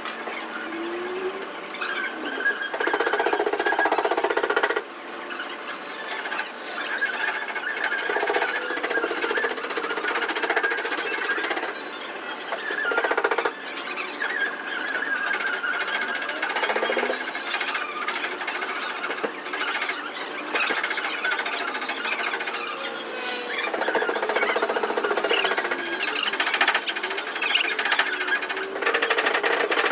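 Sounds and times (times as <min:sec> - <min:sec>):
power tool chattering: 0:14.8 - 0:29.9.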